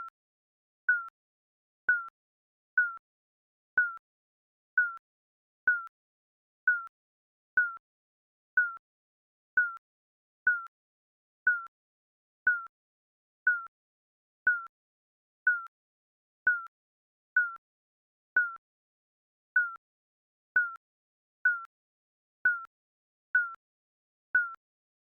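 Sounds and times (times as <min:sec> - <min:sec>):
timer beeping: 0:01.9 - 0:02.1, 0:04.8 - 0:05.0, 0:08.6 - 0:08.8.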